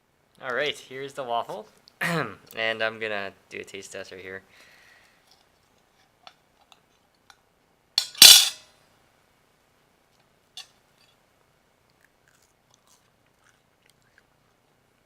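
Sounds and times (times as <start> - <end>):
crisp crunch of a bite: 11.9 - 14.8.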